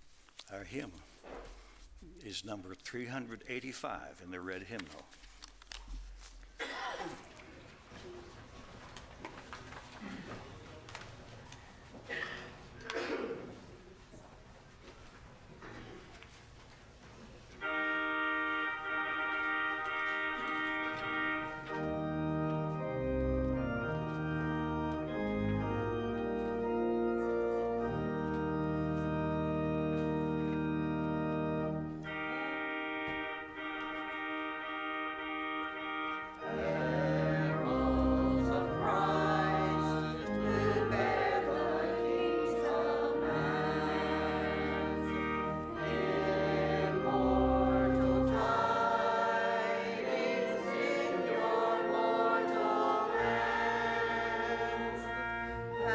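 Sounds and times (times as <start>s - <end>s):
church organ chords: 17.6s - 55.9s
congregation singing a hymn: 17.6s - 55.9s.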